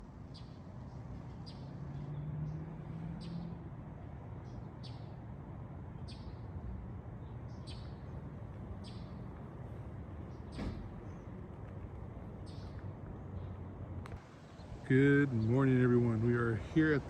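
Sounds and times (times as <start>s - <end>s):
small bird chirping: 0.3s - 2.3s, 4.4s - 5.2s, 7.2s - 8.1s, 8.8s - 9.2s, 12.4s - 12.8s.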